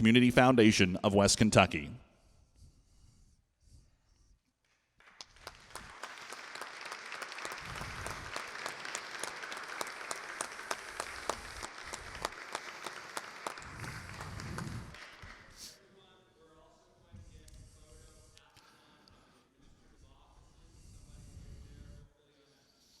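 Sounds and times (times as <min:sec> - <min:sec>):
audience applauding: 0:05.0 - 0:15.7.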